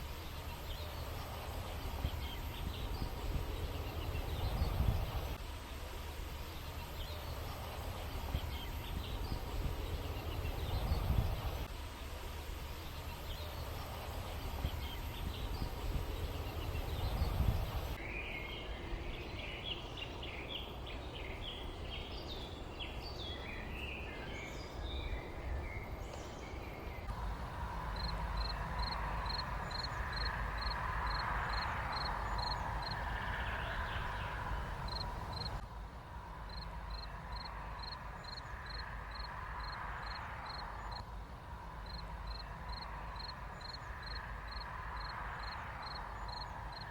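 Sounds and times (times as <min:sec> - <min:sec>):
birds chirping: 0:00.0 - 0:35.6
steady faint tone: 0:00.0 - 0:46.9.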